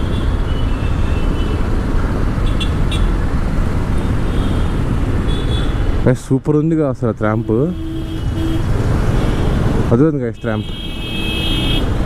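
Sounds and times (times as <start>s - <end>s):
road traffic: 0.0s - 12.0s
motorcycle engine: 7.7s - 9.9s.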